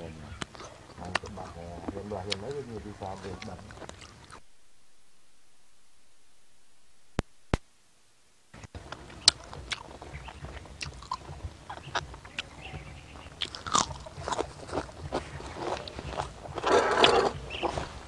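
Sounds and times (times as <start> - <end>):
chewing and biting chicken: 0.3 - 4.4, 8.8 - 18.0.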